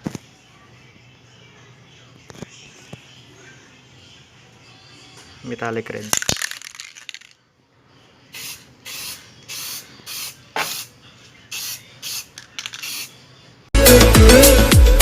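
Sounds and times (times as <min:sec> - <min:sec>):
spray paint hissing: 0:08.3 - 0:13.2.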